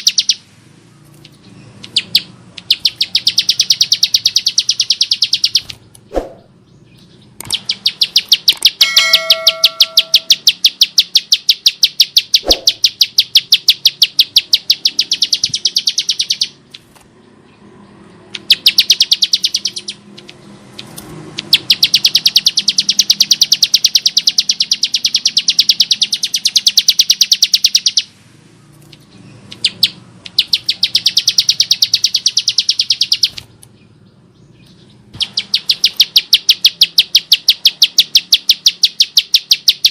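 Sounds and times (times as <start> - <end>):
bird calling sharp high notes: 7.5 - 16.6.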